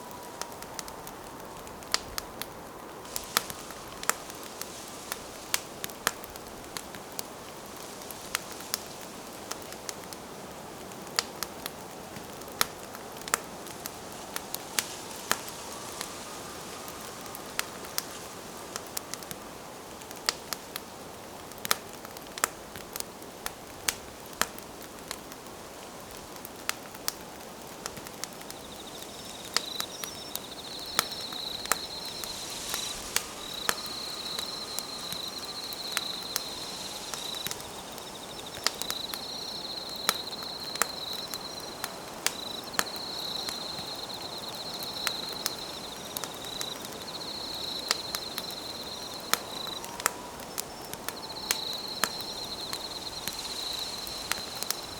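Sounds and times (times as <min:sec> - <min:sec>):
campfire crackling and popping: 0:00.0 - 0:54.9
insect chirping trill: 0:14.0 - 0:19.2, 0:28.2 - 0:54.9.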